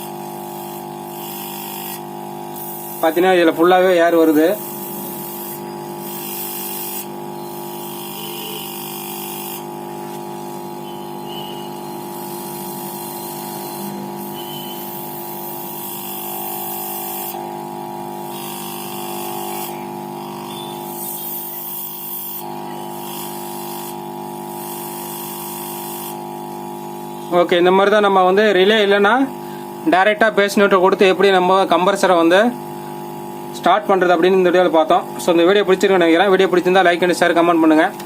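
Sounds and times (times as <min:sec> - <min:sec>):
compressor humming: 0:00.0 - 0:38.0.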